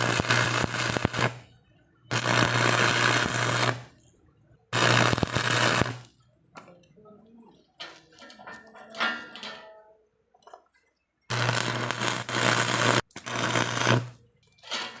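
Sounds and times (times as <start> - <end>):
arc welding crackling hiss: 0.0 - 1.4, 2.1 - 3.9, 4.8 - 6.1, 11.3 - 14.2.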